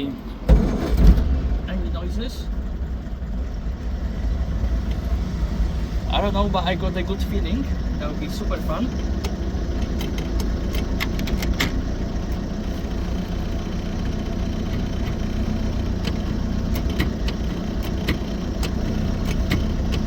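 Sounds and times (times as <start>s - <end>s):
car engine running: 0.0s - 20.0s
sharp clicks: 8.9s - 11.8s, 16.0s - 20.0s.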